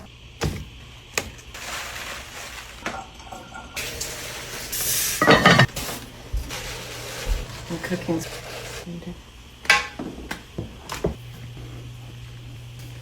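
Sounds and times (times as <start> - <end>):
dishes and utensils clinking: 5.2 - 5.7
dishes clattering: 5.2 - 5.7, 9.7 - 10.3.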